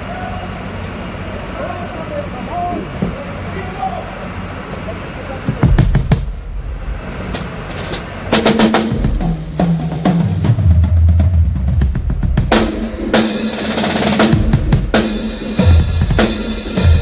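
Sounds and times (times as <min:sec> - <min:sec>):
drum kit playing: 0:05.5 - 0:17.0.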